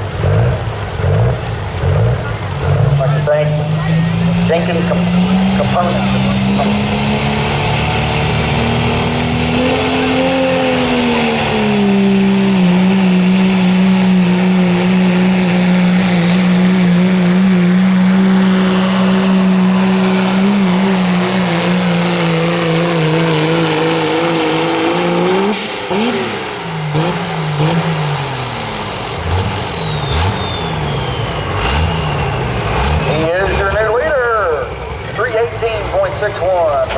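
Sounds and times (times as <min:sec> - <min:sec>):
diesel truck engine at full throttle: 0:00.0 - 0:36.9
high whistle: 0:29.2 - 0:32.4.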